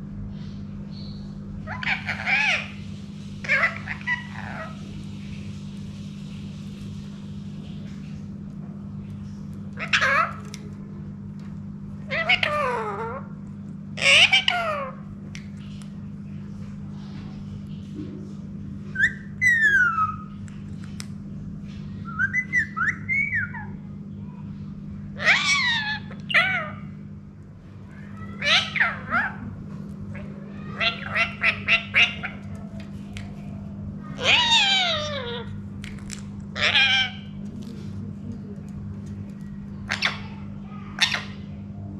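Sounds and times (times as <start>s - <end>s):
steady low hum: 0.0s - 41.9s
parrot talking: 1.6s - 2.8s, 3.4s - 4.8s, 9.8s - 10.7s, 12.0s - 13.3s, 14.0s - 15.1s, 18.9s - 20.3s, 22.0s - 23.8s, 25.2s - 26.9s, 27.9s - 32.6s, 34.1s - 35.6s, 36.6s - 37.4s, 39.8s - 41.5s
parakeet whistling: 18.9s - 20.3s, 22.0s - 23.8s.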